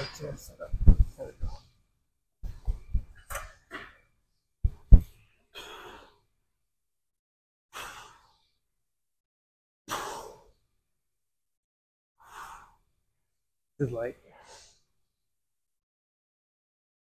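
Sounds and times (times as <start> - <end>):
man breathing out forcefully: 5.6 - 6.2, 7.8 - 8.4, 9.9 - 10.5.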